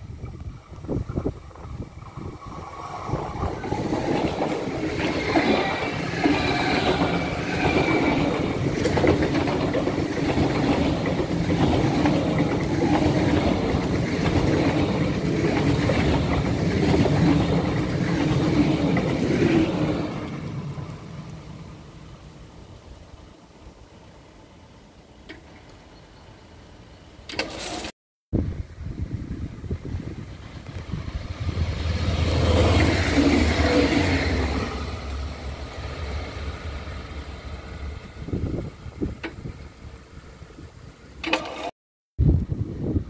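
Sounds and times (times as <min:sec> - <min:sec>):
high-speed train passing: 0:00.0 - 0:27.3, 0:28.4 - 0:41.7.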